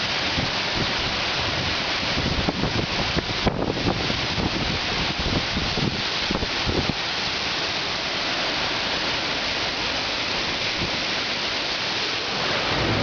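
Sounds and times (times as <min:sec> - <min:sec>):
heavy rain pouring: 0:00.0 - 0:13.0
wind buffeting microphone: 0:00.3 - 0:07.0.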